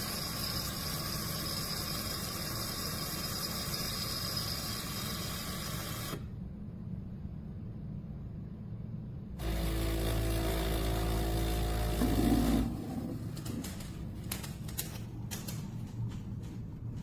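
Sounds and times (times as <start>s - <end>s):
espresso machine humming: 0.0s - 6.2s, 9.4s - 13.2s.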